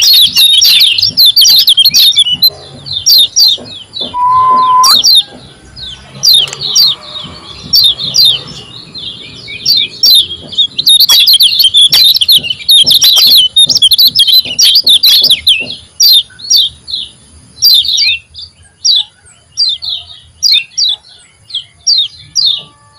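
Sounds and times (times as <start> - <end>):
bird chirping rapidly: 0.0 - 22.9.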